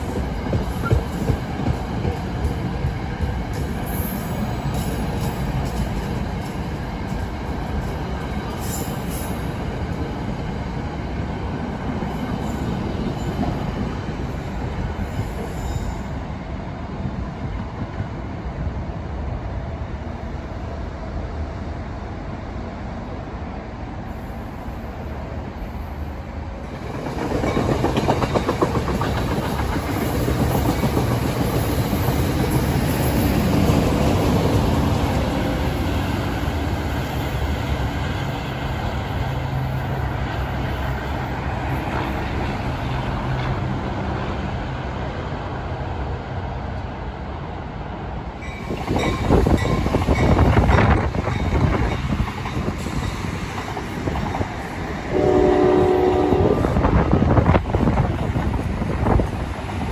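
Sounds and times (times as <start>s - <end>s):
train wheel clatter: 0.0s - 10.1s, 26.7s - 35.1s, 48.5s - 55.1s.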